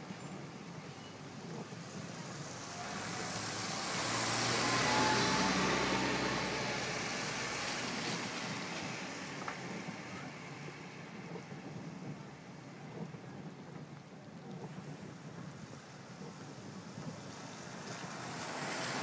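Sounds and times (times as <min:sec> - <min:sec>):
vehicle driving past: 0:02.6 - 0:09.8, 0:17.3 - 0:19.0.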